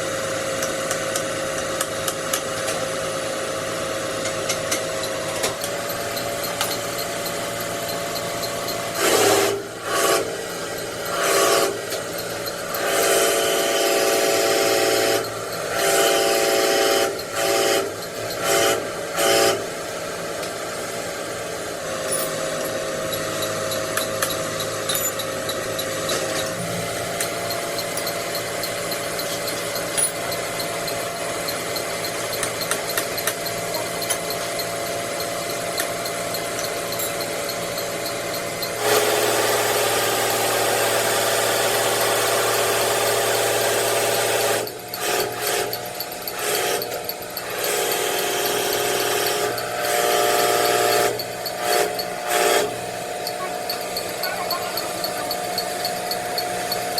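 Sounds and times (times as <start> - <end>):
electric power tool running: 0.0 - 56.9.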